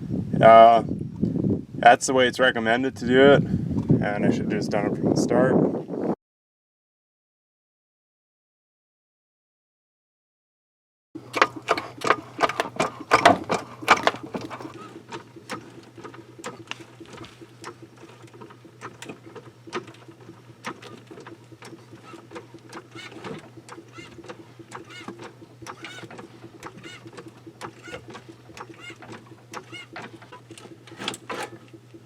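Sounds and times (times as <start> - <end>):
steady low hum: 11.2 - 32.0
rapid clicking and tapping: 11.3 - 32.0.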